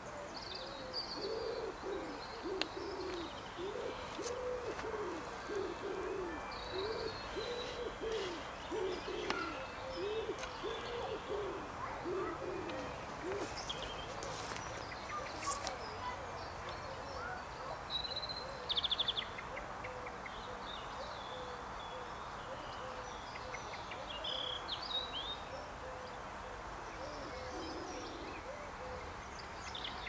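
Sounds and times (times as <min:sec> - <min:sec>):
bird cooing: 0:00.0 - 0:16.2, 0:27.0 - 0:29.2
small birds chirping: 0:00.0 - 0:19.7.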